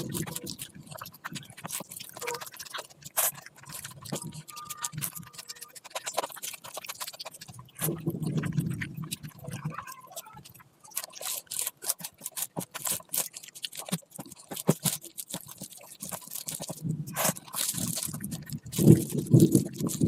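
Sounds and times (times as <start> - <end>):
person chewing food: 0.0 - 20.0
wet mouth clicks and smacks: 0.0 - 20.0.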